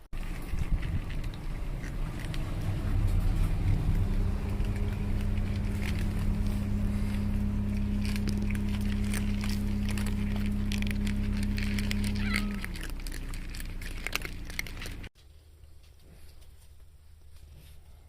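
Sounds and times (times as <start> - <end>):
low mechanical hum: 0.0 - 18.0
clicks and crackles: 7.2 - 16.8.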